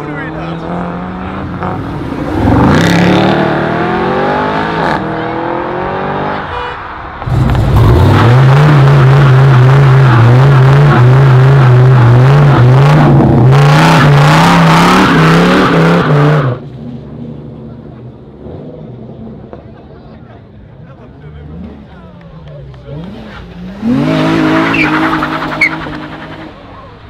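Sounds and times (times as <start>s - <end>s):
car engine accelerating: 0.0s - 20.1s, 20.8s - 26.9s
engine at high revs: 0.1s - 6.5s, 7.2s - 16.6s, 22.7s - 26.6s.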